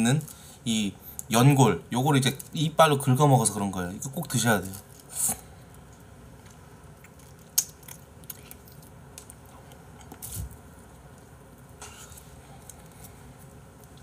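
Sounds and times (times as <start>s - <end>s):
teeth gnawing on bone: 5.0s - 10.4s.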